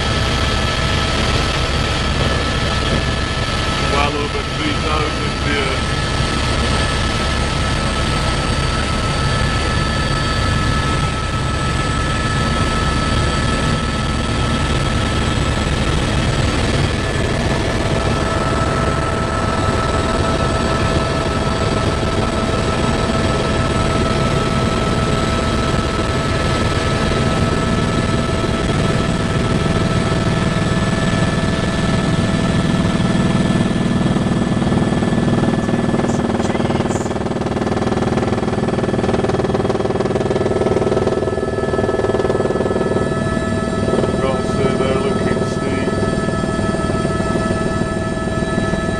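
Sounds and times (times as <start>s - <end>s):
helicopter rotor and turbine noise: 0.0s - 48.9s
thin whining tones: 39.9s - 48.9s.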